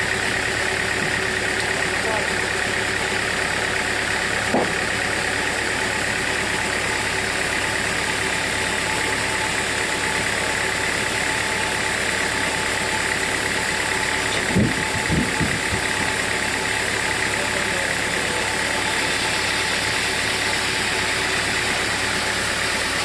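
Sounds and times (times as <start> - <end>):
sawmill machinery humming and whining: 0.0 - 23.0
dull knocks: 4.5 - 4.8.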